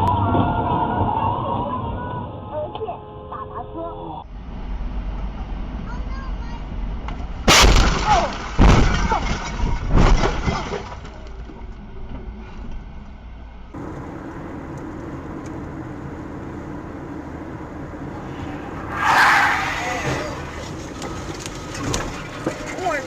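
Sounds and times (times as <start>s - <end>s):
vehicle and road noise: 0.0s - 23.0s
vehicle crash impacts: 7.1s - 11.6s, 18.1s - 23.0s.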